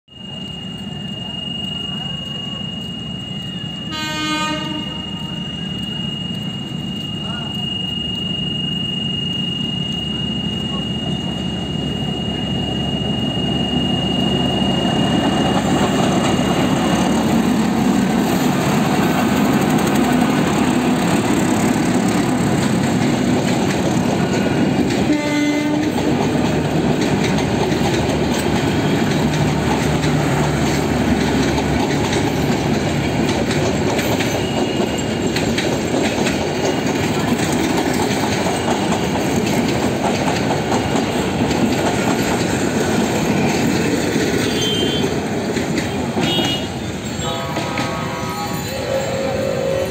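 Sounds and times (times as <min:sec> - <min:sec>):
train horn: 0:03.8 - 0:05.6, 0:25.0 - 0:26.3, 0:44.4 - 0:45.2, 0:46.2 - 0:49.9
train wheels clattering on rail: 0:14.2 - 0:49.2.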